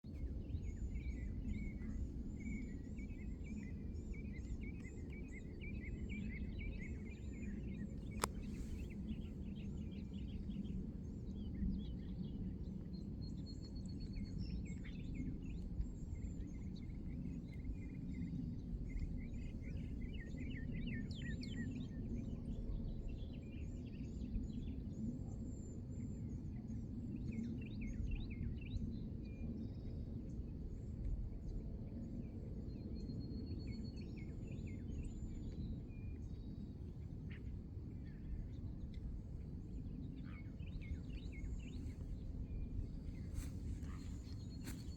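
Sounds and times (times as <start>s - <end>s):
steady low rumble: 0.1s - 23.0s, 35.0s - 44.9s
small birds chirping and trilling: 40.2s - 44.9s.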